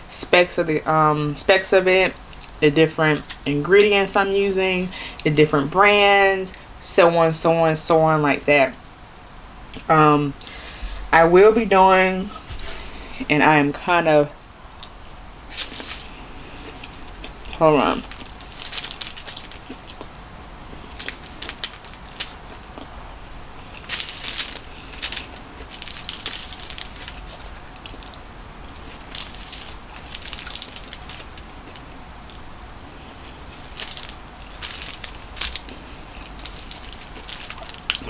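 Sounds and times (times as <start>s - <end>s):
chewing food: 15.6s - 38.0s.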